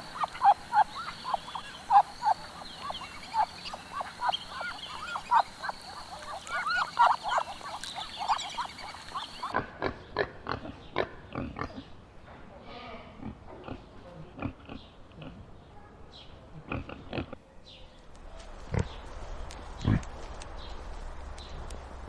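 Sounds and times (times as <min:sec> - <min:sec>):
pigs grunting: 0:00.0 - 0:09.5
short animal calls: 0:00.0 - 0:09.5.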